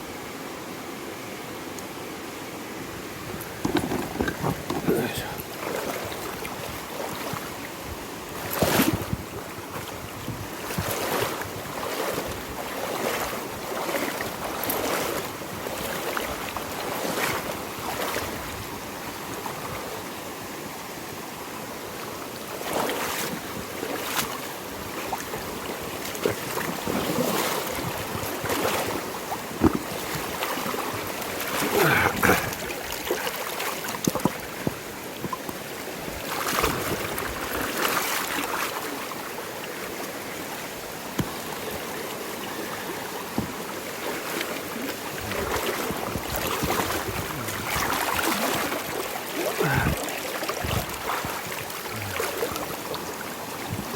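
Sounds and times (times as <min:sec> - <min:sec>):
river water flowing: 0:00.0 - 0:53.9
wind on microphone: 0:06.2 - 0:12.6, 0:36.5 - 0:37.6, 0:45.1 - 0:48.3, 0:50.6 - 0:52.5, 0:53.6 - 0:53.9.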